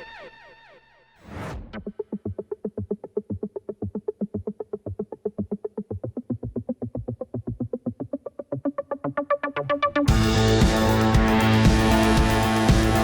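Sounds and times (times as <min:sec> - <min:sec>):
drum machine beat: 0:10.1 - 0:13.0.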